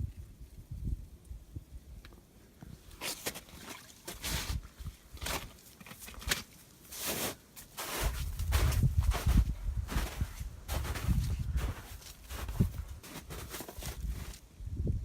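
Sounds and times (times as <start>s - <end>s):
footsteps on rough ground: 3.1s - 14.4s
low microphone rumble: 8.2s - 13.0s.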